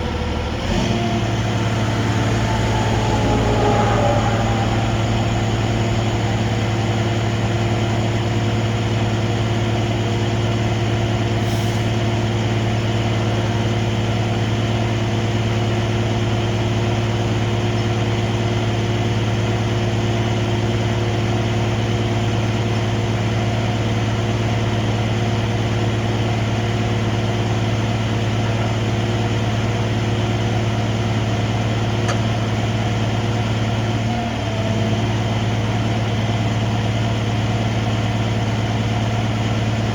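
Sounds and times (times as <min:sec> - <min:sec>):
diesel truck engine running: 0:00.0 - 0:20.5.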